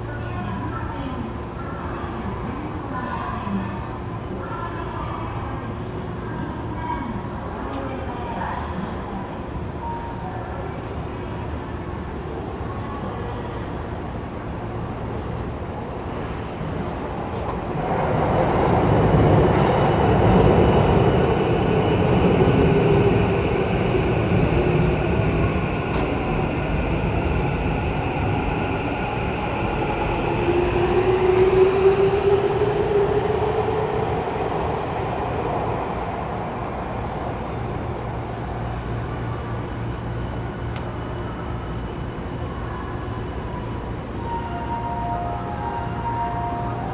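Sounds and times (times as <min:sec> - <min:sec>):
train wheels rumbling on rails: 0:14.1 - 0:41.9.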